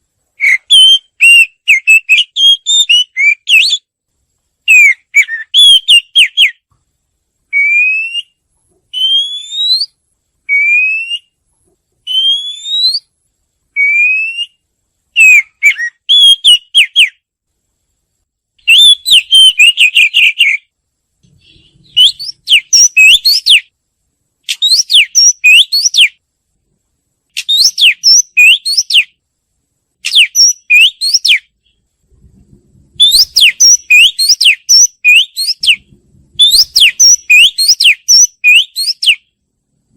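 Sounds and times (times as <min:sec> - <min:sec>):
bird singing whistles: 0:00.4 - 0:03.9, 0:04.7 - 0:06.6, 0:07.5 - 0:11.4, 0:12.1 - 0:13.1, 0:13.8 - 0:14.6, 0:15.2 - 0:17.2, 0:18.6 - 0:20.7, 0:21.4 - 0:23.7, 0:24.5 - 0:26.2, 0:27.4 - 0:29.2, 0:30.0 - 0:31.8, 0:33.0 - 0:39.3.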